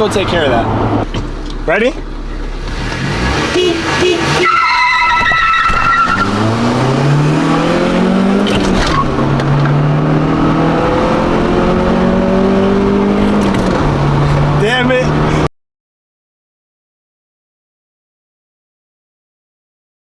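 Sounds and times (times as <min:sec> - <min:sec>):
car engine accelerating: 0:00.0 - 0:15.5
tyres squealing: 0:01.2 - 0:09.5.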